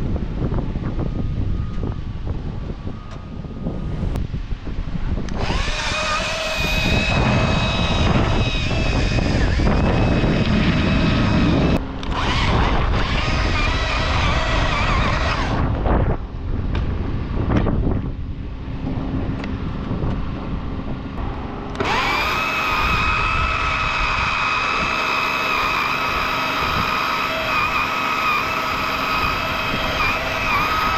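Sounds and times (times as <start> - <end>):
chainsaw running at high revs: 5.3 - 15.7, 21.7 - 30.9.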